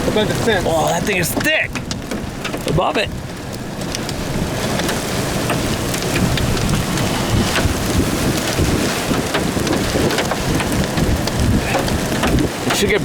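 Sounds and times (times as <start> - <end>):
heavy rain pelting a vehicle: 0.0 - 13.0.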